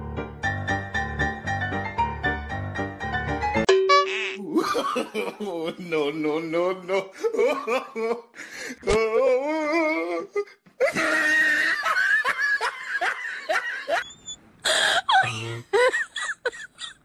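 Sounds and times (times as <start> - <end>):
person laughing: 4.4 - 14.0, 14.7 - 17.0.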